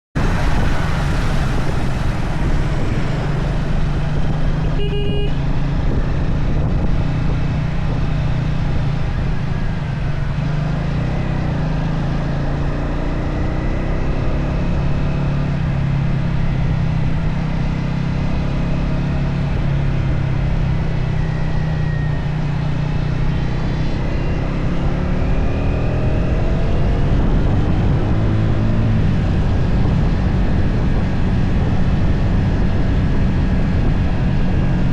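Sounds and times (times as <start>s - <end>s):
wind noise: 0.2s - 11.6s, 12.4s - 34.9s
motorcycle engine running: 0.2s - 12.4s
short beep: 4.6s - 5.4s.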